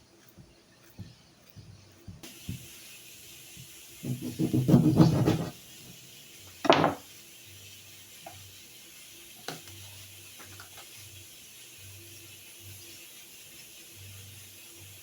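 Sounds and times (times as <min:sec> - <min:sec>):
utensil scraping cooking pot: 0:04.0 - 0:05.6.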